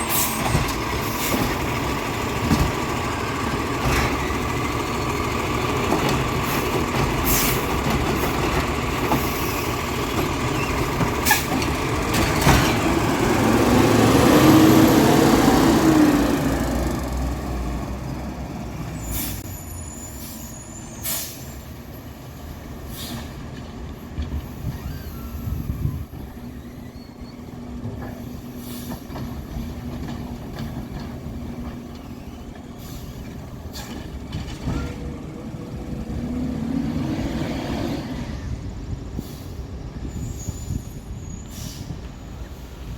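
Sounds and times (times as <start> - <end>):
garbage truck engine running: 0.0 - 19.3
short sharp hisses: 41.5 - 42.0.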